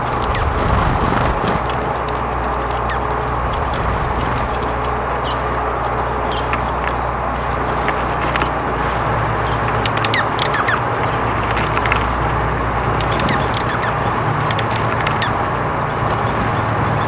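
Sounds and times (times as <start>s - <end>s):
birds chirping and calling: 0.0s - 1.7s, 2.7s - 6.4s, 9.4s - 11.2s, 11.9s - 17.0s
steady rushing noise: 0.0s - 5.4s.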